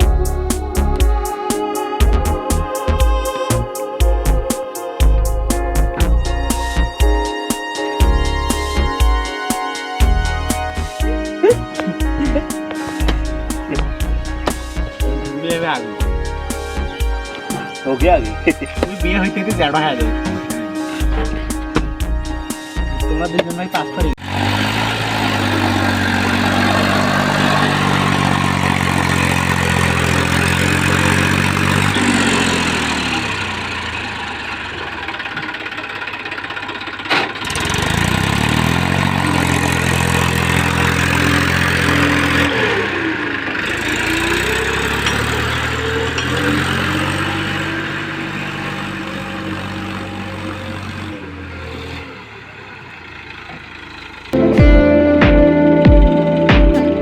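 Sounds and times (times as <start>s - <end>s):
tractor diesel engine under load: 10.0s - 57.0s.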